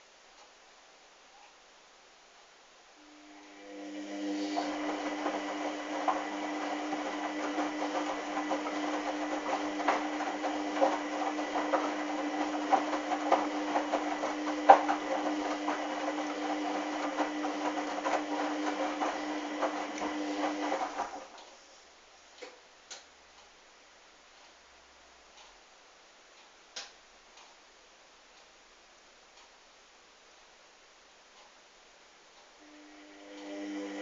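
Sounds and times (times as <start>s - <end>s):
washing machine motor whirring: 3.0s - 21.6s, 32.6s - 34.0s
wet towels knocking in drum: 6.1s - 21.1s.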